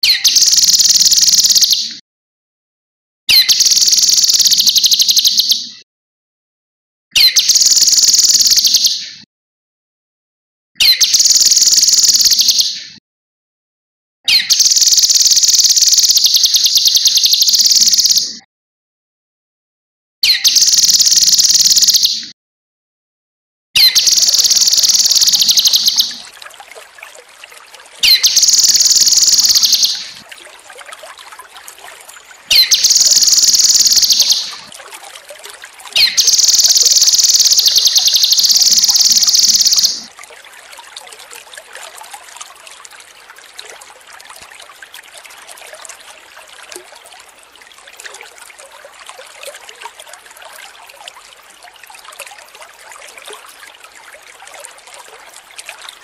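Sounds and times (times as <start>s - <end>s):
water trickling: 0.4s - 1.6s, 3.6s - 4.8s, 11.1s - 12.4s, 14.5s - 18.2s, 20.5s - 22.0s, 23.8s - 56.0s
songbird trilling: 14.3s - 18.3s, 23.8s - 26.2s, 28.0s - 30.1s, 32.5s - 34.6s, 36.0s - 40.1s.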